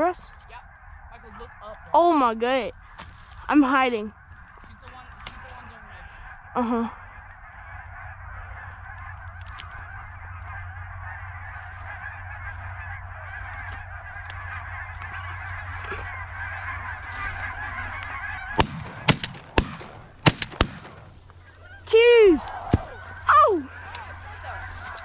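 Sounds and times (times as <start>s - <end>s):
geese honking: 0.0s - 25.0s
shotgun shots: 18.5s - 21.3s.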